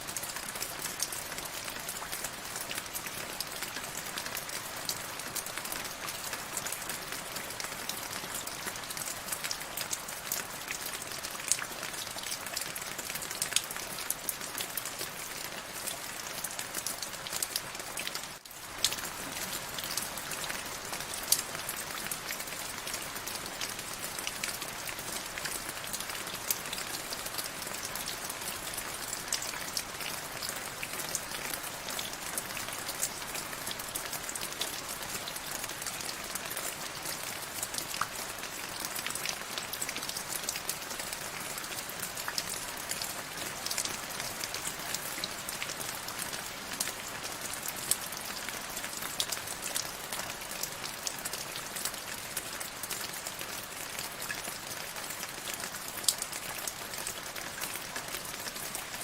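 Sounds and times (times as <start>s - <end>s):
raindrops ticking on surface: 0.0s - 59.0s
steady rain: 0.0s - 59.0s.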